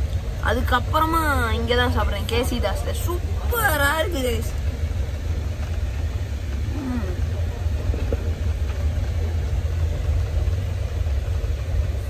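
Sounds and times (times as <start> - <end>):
train rumble inside coach: 0.0 - 12.0
faint voice: 6.6 - 7.8.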